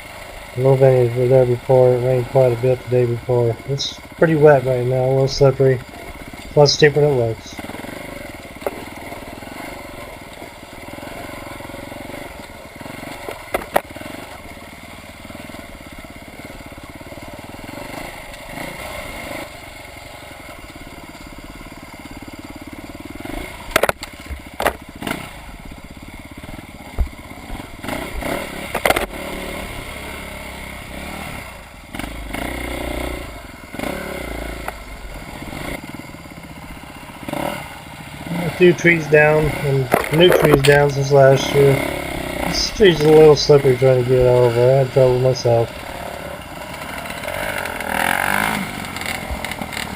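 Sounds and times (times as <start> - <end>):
vehicle engine running at low revs: 0.0 - 49.9.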